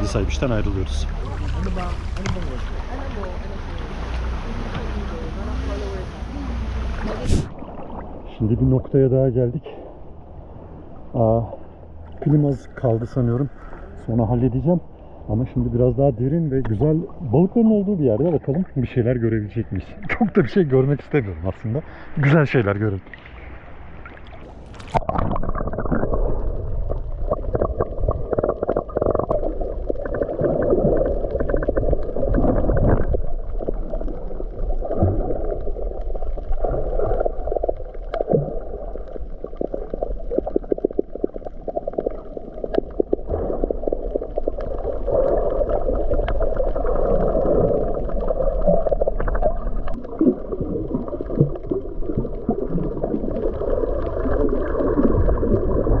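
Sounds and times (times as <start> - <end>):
muffled underwater water noise: 0.0 - 56.0
splash: 0.8 - 8.2, 23.0 - 56.0
bubbling: 23.0 - 56.0.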